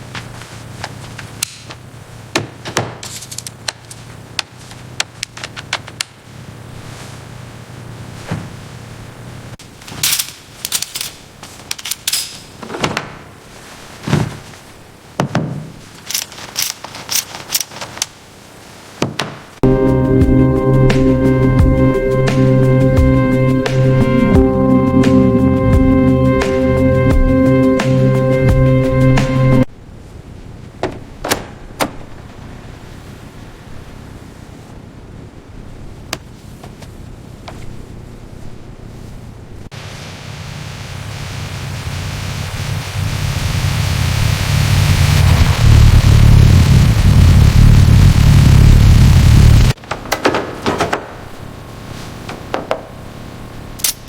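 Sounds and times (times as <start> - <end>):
heavy thuds: 8.2 - 8.7, 12.6 - 15.9
tools clicking and knocking: 16.0 - 18.0
low steady background noise: 29.6 - 54.0.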